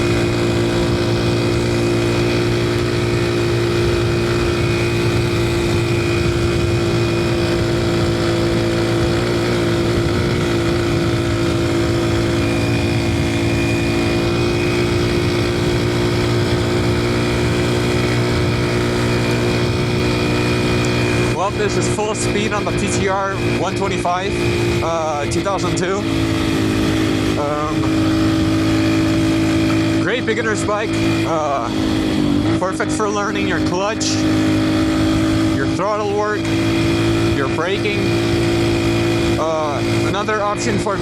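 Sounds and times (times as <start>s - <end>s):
dirt bike engine at high speed: 0.0s - 41.0s.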